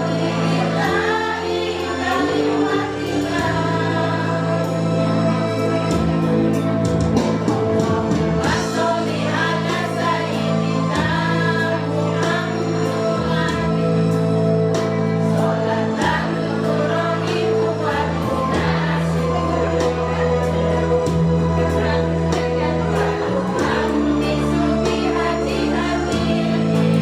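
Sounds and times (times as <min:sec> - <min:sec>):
choir singing: 0:00.0 - 0:27.0
held accompaniment chords: 0:00.0 - 0:27.0.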